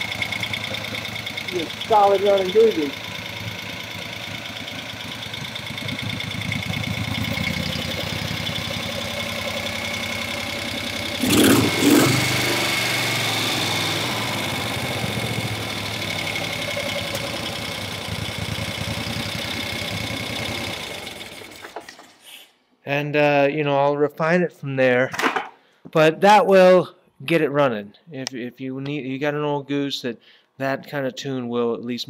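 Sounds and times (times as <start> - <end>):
motorcycle engine idling: 0.0 - 21.9
person talking: 1.5 - 3.0.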